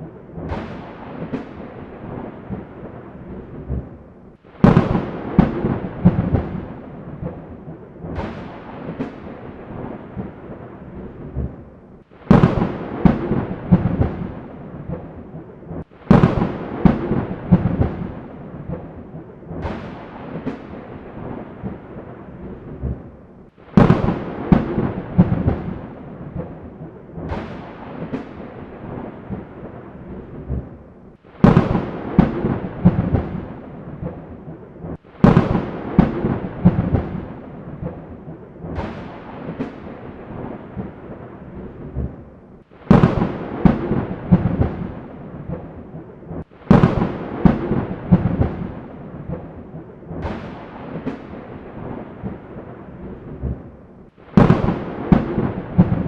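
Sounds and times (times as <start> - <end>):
sharp thunderclaps: 0.0 - 56.0
rain hiss: 4.3 - 10.9, 12.0 - 22.2, 23.4 - 30.2, 31.1 - 41.4, 42.6 - 52.8.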